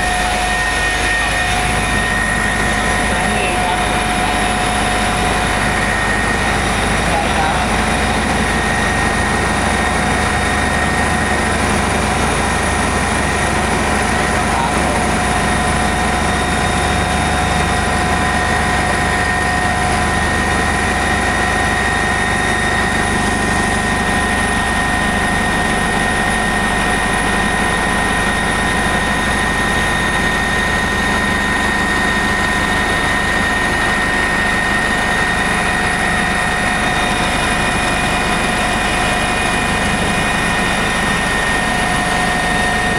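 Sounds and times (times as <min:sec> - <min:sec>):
helicopter rotor and engine: 0:00.0 - 0:42.9
high-pitched whine: 0:00.0 - 0:42.9.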